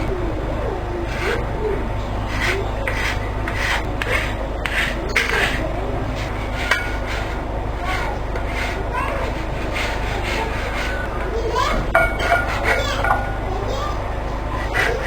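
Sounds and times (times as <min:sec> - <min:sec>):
hand tool scraping wood: 0:02.0 - 0:15.0.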